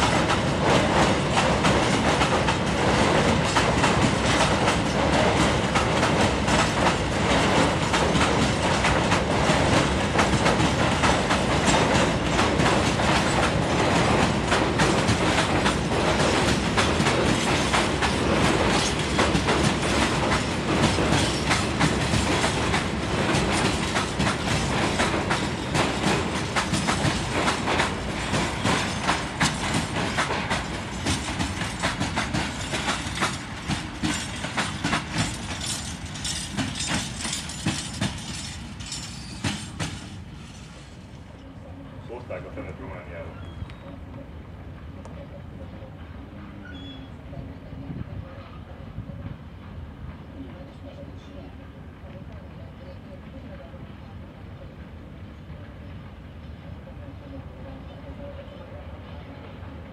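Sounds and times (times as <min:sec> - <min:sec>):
wheels clacking over rail joints: 0:00.0 - 0:40.9.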